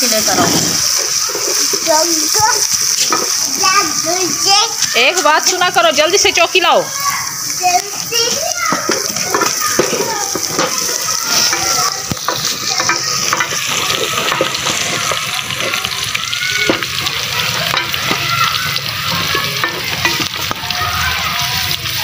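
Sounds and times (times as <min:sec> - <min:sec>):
onions sizzling in oil: 0:00.0 - 0:22.0
wooden spoon scraping pot: 0:08.7 - 0:16.1.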